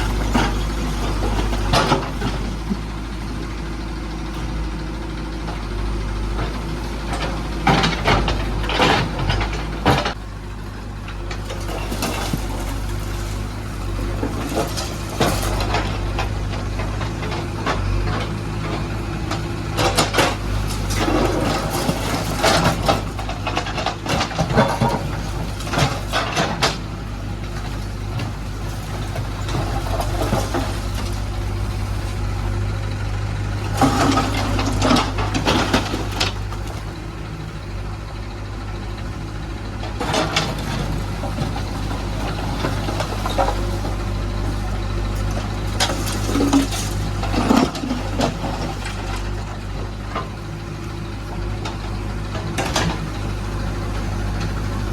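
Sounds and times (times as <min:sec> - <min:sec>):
diesel engine running: 0:00.0 - 0:54.9
bucket rattling clatter: 0:40.0 - 0:50.5.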